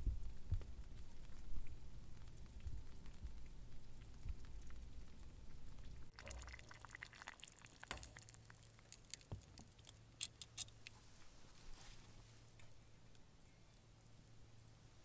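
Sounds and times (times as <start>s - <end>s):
liquid pouring and dripping: 6.1s - 10.9s.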